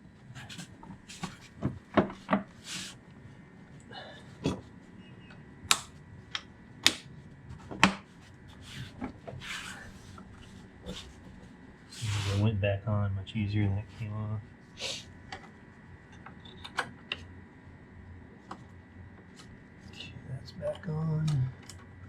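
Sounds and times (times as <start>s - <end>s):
short rubbing or scraping: 11.9s - 12.5s.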